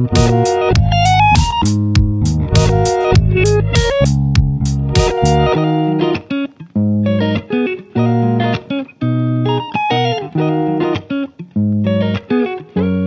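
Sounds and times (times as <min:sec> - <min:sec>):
bass line: 0:00.0 - 0:05.6
steady beat: 0:00.0 - 0:06.0
plucked guitar melody: 0:00.0 - 0:13.0.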